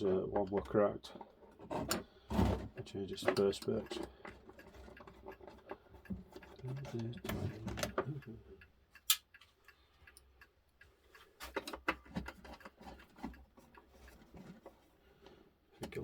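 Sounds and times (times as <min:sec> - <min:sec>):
clock parts clicking and tapping: 0:02.8 - 0:14.6.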